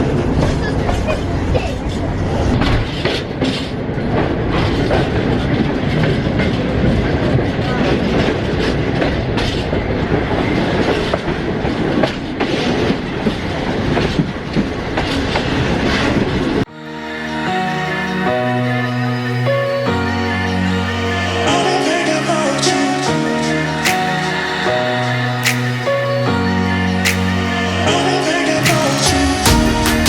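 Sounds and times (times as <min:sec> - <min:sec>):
train rumbling on track: 0:00.0 - 0:16.7
electronic music: 0:16.7 - 0:30.0.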